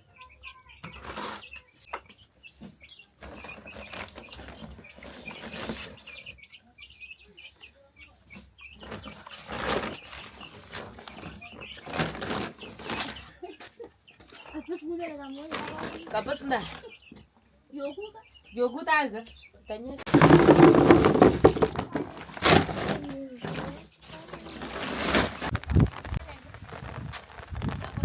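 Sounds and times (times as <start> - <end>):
chicks peeping: 0.0 - 28.0
rustling noise: 0.9 - 6.4, 8.2 - 13.4, 20.0 - 28.0.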